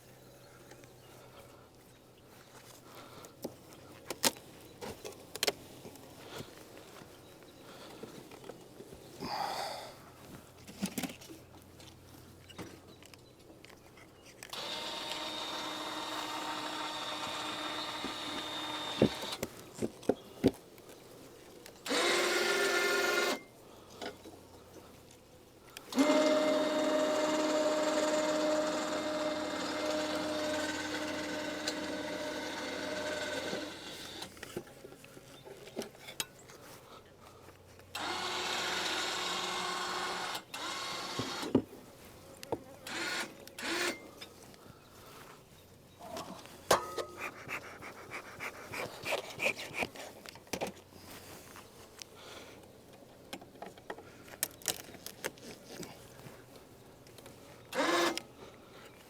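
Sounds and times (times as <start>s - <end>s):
small electric motor whining: 14.5s - 19.4s, 21.8s - 23.5s, 25.9s - 34.4s, 37.9s - 41.6s, 42.8s - 44.1s, 57.7s - 58.3s.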